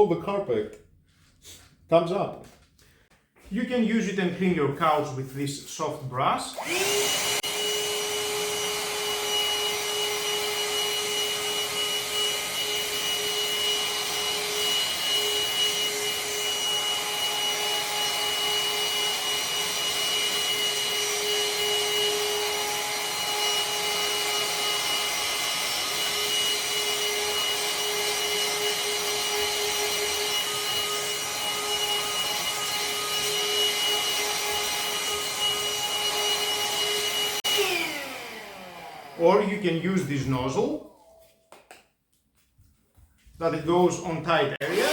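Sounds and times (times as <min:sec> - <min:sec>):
handheld vacuum cleaner running: 0:06.5 - 0:40.8, 0:44.6 - 0:44.9.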